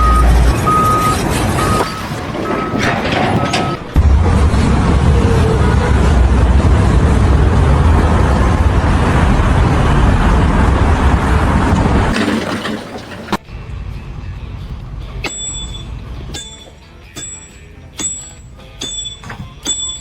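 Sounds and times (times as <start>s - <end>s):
reversing beep: 0.0s - 3.9s, 15.3s - 15.9s
heavy machinery rumbling: 0.0s - 13.6s.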